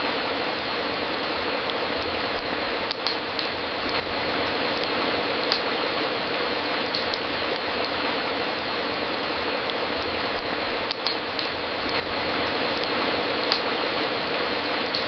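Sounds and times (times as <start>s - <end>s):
wood fire crackling: 0.0s - 15.0s
sharp fire pops: 2.0s - 4.1s, 4.8s - 5.8s, 6.9s - 8.1s, 10.0s - 12.2s, 12.8s - 13.8s.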